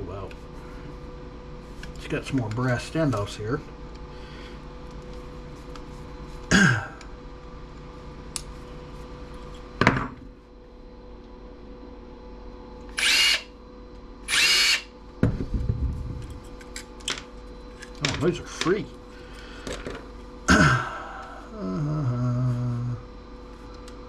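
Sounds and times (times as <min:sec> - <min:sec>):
power drill whirring: 0:12.9 - 0:13.5, 0:14.3 - 0:14.9.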